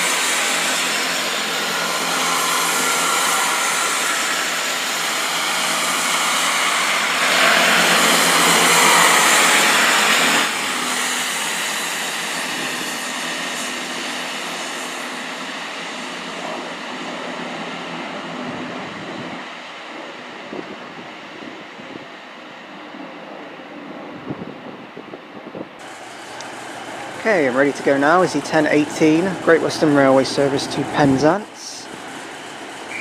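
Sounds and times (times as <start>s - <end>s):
train passing: 0.0s - 33.0s.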